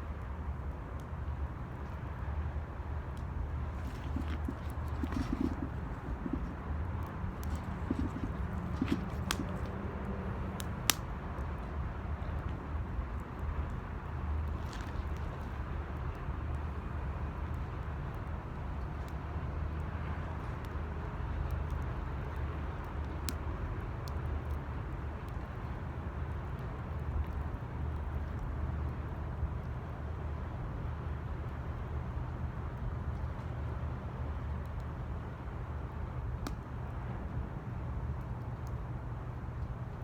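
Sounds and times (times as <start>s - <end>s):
wood fire crackling: 3.0s - 11.3s.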